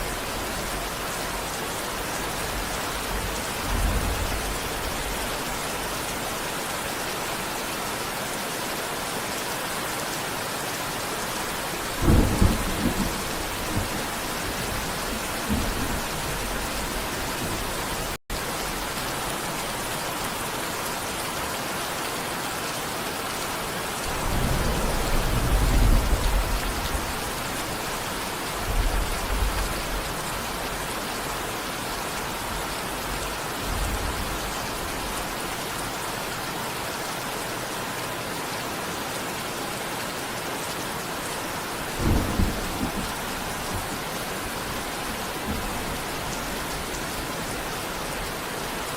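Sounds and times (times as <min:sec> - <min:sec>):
heavy rain falling: 0:00.0 - 0:48.9
thunder rumbling: 0:11.8 - 0:18.2, 0:24.1 - 0:29.7, 0:41.9 - 0:47.0.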